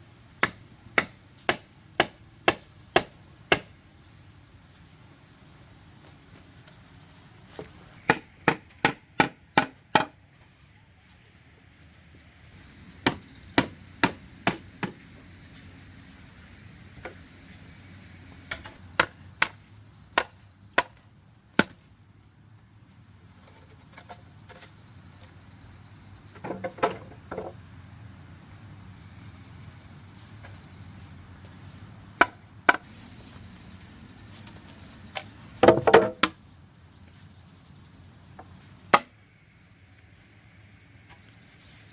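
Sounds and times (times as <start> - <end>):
hammering strikes on hard material: 0.4 - 3.7, 8.1 - 10.2, 13.0 - 15.0.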